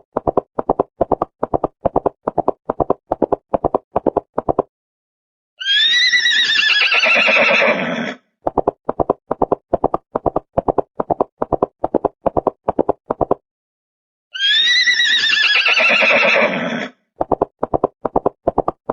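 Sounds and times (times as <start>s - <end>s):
horse whinnying: 5.6s - 8.2s, 14.4s - 17.0s.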